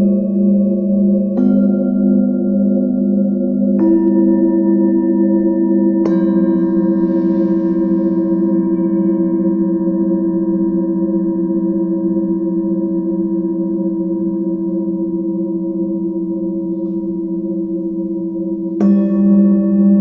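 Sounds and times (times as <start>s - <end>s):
singing bowl ringing: 0.0s - 20.0s.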